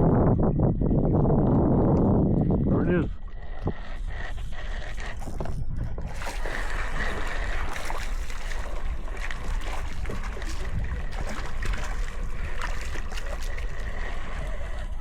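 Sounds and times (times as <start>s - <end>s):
water lapping around kayak: 0.0s - 15.0s
wind rumbling on microphone: 0.0s - 15.0s
small clicks and splashes: 4.9s - 15.0s.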